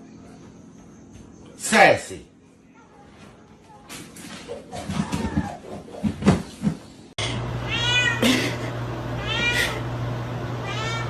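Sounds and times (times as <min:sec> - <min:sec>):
cat meowing: 0:07.7 - 0:08.3, 0:09.2 - 0:09.8, 0:10.6 - 0:11.0.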